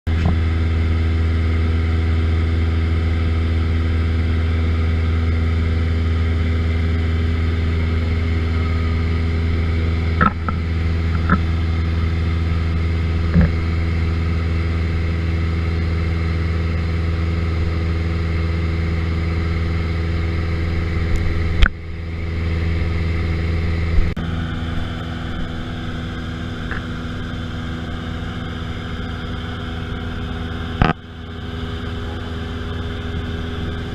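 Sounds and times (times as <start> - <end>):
aircraft engine drone: 0.1 - 33.9
sharp clicks or knocks: 10.2 - 11.4.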